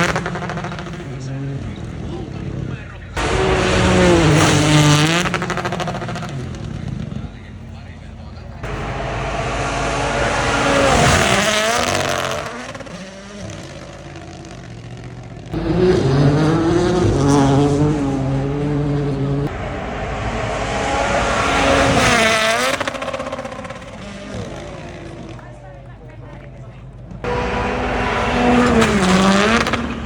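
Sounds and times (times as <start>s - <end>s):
rally cars revving past: 0.0s - 2.6s, 3.2s - 7.3s, 8.6s - 25.6s, 27.0s - 30.0s.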